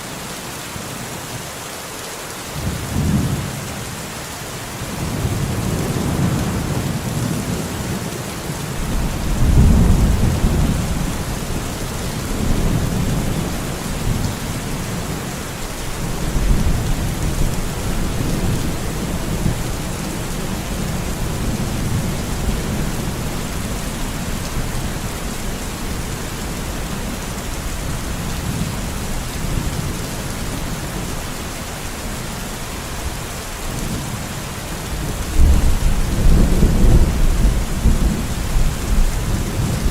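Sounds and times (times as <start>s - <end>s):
rain falling in forest: 0.0s - 39.9s
thunder rumbling: 8.7s - 26.0s, 34.9s - 39.9s.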